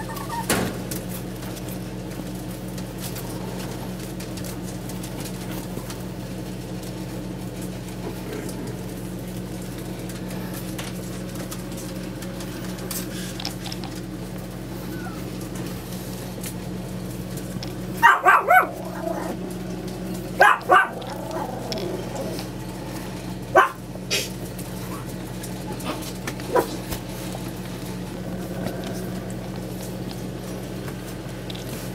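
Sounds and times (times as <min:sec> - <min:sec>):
puppies barking in high yips: 0:00.0 - 0:00.7, 0:14.7 - 0:15.6, 0:17.9 - 0:19.4, 0:20.1 - 0:22.6, 0:23.4 - 0:23.8, 0:24.7 - 0:26.8
steady low hum: 0:00.0 - 0:31.9.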